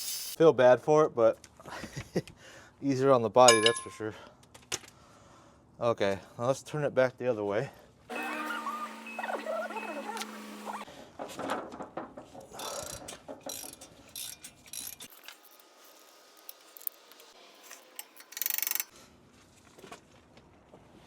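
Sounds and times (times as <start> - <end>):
tools clinking on metal: 3.5 - 4.2.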